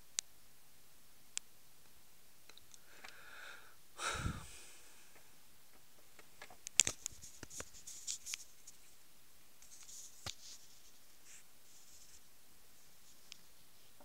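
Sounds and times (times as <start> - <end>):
small clicks: 6.2 - 8.5
scratchy rustles: 6.2 - 9.0, 9.6 - 14.0.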